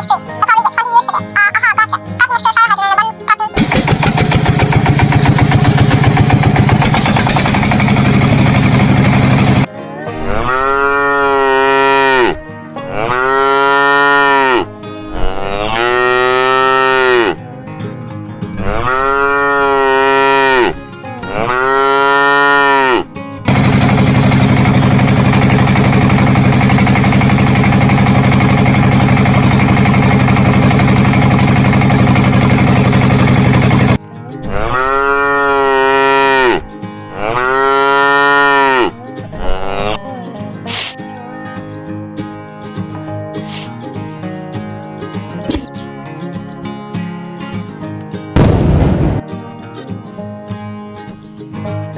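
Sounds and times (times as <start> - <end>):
engine running: 3.5 - 12.3, 20.7 - 40.0, 48.4 - 49.2
cow mooing: 9.8 - 17.5, 18.5 - 23.2, 34.4 - 40.1.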